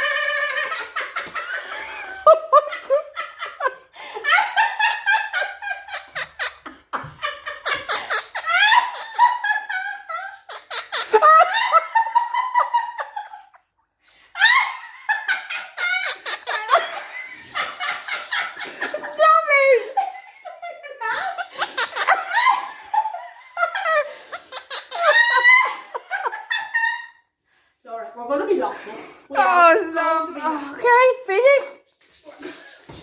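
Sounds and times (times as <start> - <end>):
parrot mimicking laughter: 5.8 - 6.6, 7.6 - 9.5, 10.1 - 11.8, 15.6 - 17.0, 21.3 - 22.6, 24.3 - 25.9.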